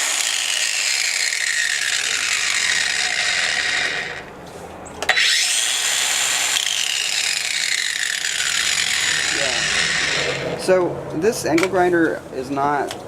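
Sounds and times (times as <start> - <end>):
angle grinder running: 0.0 - 4.3, 5.1 - 10.6.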